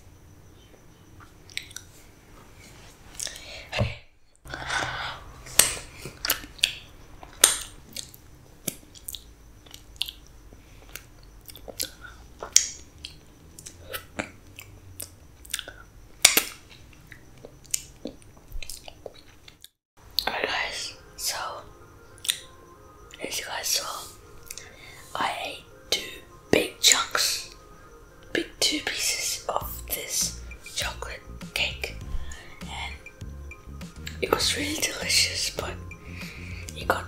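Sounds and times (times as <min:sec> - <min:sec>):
person chewing with wet smacks: 0:01.5 - 0:01.9, 0:10.8 - 0:19.8.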